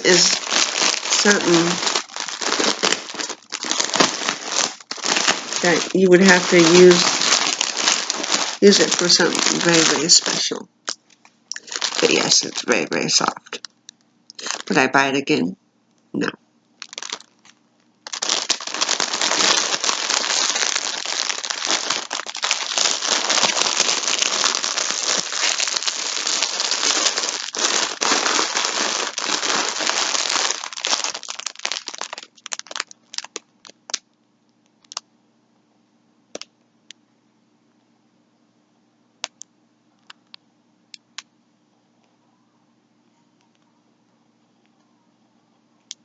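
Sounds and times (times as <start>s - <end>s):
plastic packaging crinkling: 0.0s - 15.2s, 16.8s - 34.0s, 34.8s - 35.0s.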